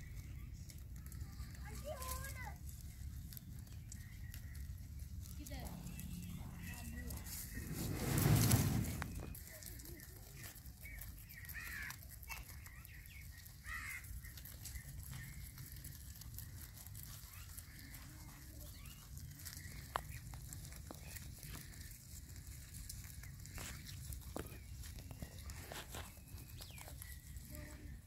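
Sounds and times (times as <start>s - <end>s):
bird calls: 0.0s - 28.0s
low rumble: 4.6s - 9.4s.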